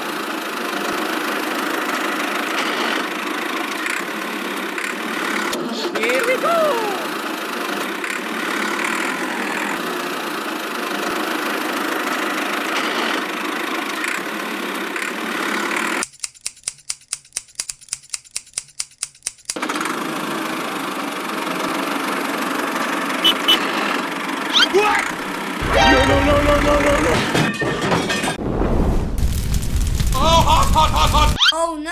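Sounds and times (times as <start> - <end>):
quick regular ticks: 16.0 - 19.6.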